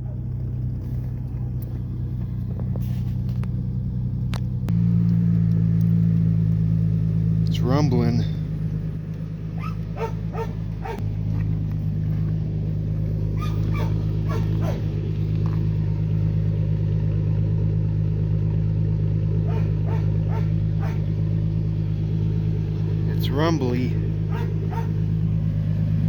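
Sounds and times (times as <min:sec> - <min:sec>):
truck engine idling: 0:00.0 - 0:26.0
dog barking: 0:09.6 - 0:11.0, 0:13.4 - 0:14.9, 0:19.4 - 0:21.1, 0:24.2 - 0:25.1.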